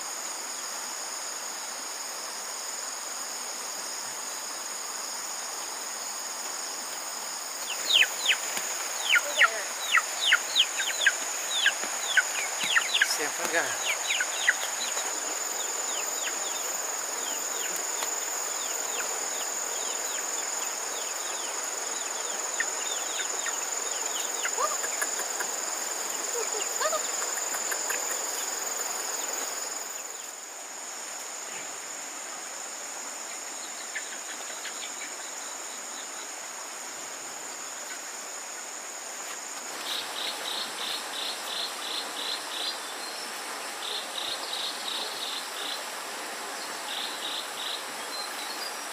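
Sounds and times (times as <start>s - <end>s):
high-pitched insect drone: 0.0s - 32.0s
insect chirping in quick pulses: 0.0s - 48.9s.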